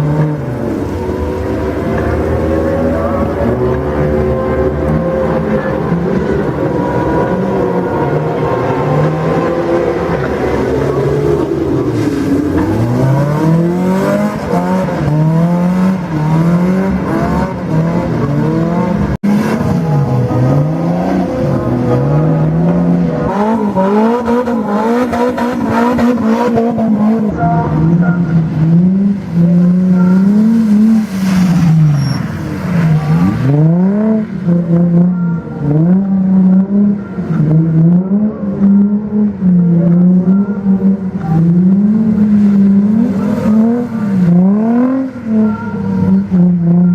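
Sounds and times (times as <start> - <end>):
car engine revving: 0.0 - 46.9
tyre squeal: 29.7 - 33.6.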